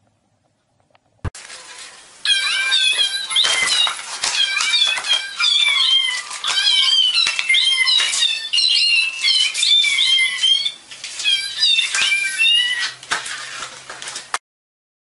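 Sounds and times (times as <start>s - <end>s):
kittens mewing: 2.3s - 13.0s.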